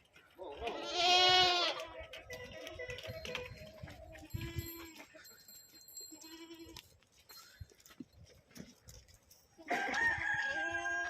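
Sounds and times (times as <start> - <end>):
goats bleating: 0.4 - 3.6, 9.7 - 11.0.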